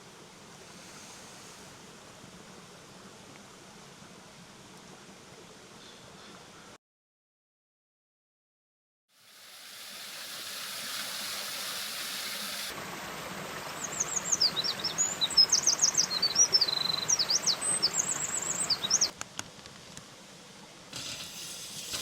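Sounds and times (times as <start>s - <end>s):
mountain stream rushing: 9.2s - 19.1s
songbird chirping and trilling: 13.8s - 19.1s.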